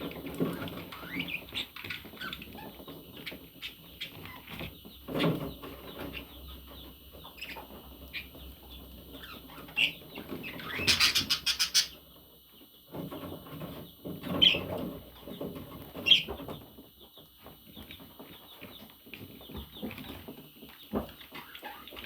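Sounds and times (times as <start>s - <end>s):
sharp high bird calls: 10.6s - 12.0s
rapid harsh bird squawks: 10.7s - 12.0s.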